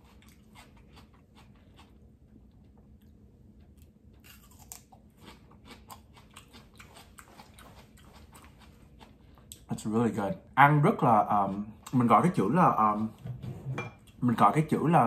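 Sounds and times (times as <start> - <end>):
crunching raw pepper: 3.7 - 9.7.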